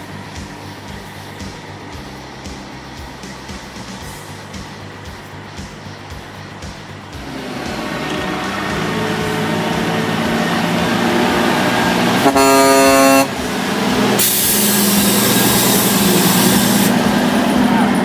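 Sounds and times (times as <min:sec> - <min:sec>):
loud rushing hiss: 0:00.0 - 0:18.0
truck engine running: 0:00.0 - 0:18.0
truck horn blast: 0:07.2 - 0:18.0.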